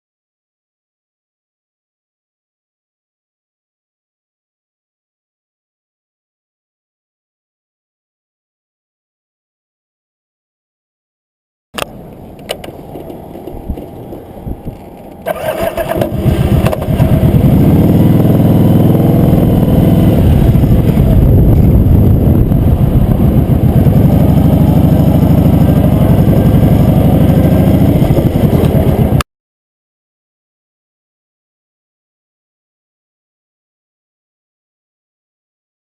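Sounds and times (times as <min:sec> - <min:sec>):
starter clicks: 0:11.8 - 0:17.1
motorcycle engine starting: 0:11.8 - 0:29.2.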